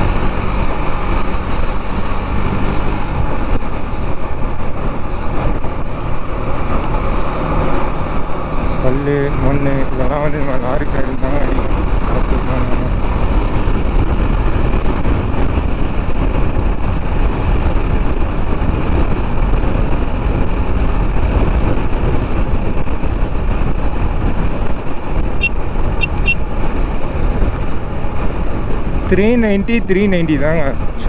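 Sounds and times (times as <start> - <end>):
motorcycle engine: 0.0 - 29.6
road traffic: 0.0 - 31.0
wind rushing over microphone: 0.0 - 31.0
quick high beeps: 25.4 - 26.4.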